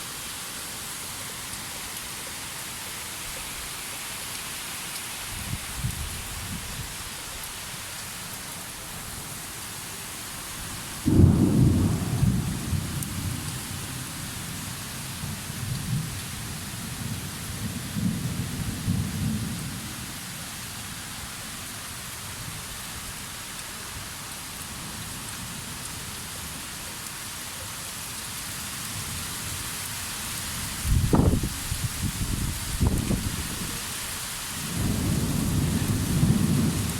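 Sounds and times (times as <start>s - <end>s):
thunder clap rumbling: 11.1s - 13.6s
rain hissing: 28.1s - 36.9s.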